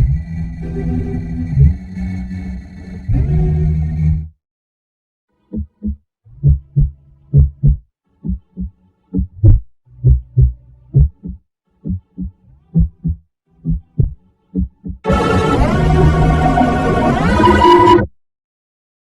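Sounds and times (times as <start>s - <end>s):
heartbeat thuds: 5.6s - 15.1s.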